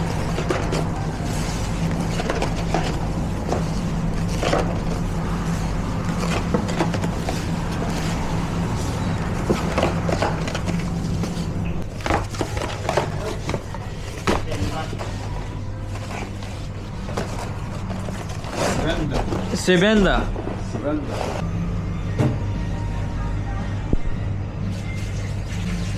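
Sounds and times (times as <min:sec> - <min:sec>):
containers and utensils clicking: 0:00.0 - 0:08.1
low machine hum: 0:00.0 - 0:25.9.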